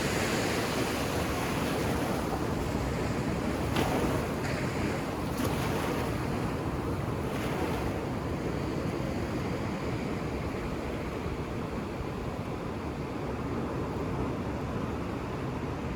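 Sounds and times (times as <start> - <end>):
ocean surf breaking on beach: 0.0 - 13.7.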